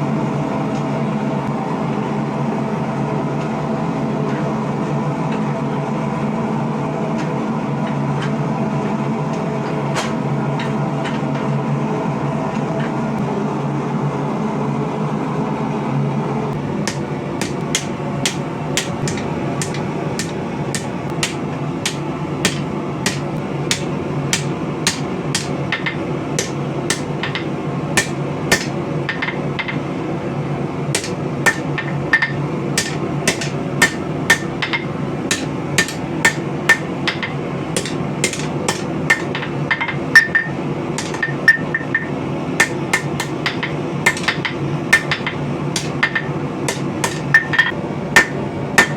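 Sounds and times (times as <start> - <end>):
hammer striking steel on anvil: 16.8 - 29.8, 31.0 - 48.9.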